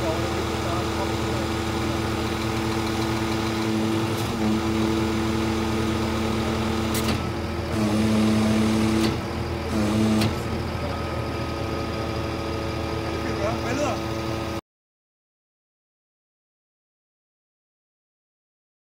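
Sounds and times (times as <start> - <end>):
truck diesel engine running: 0.0 - 14.6.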